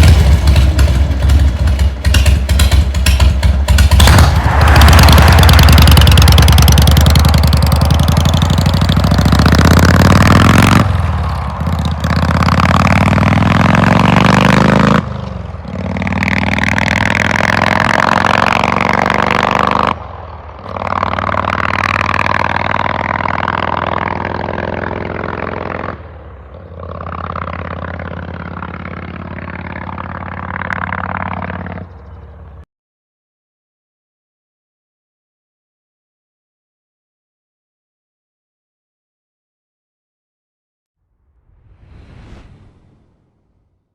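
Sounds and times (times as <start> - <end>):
motorcycle accelerating through gears: 0.0 - 32.2.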